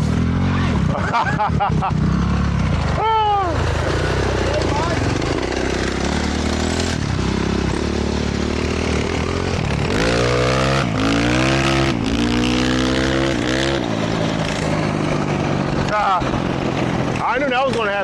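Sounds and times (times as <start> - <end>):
dirt bike engine accelerating: 0.0 - 18.0.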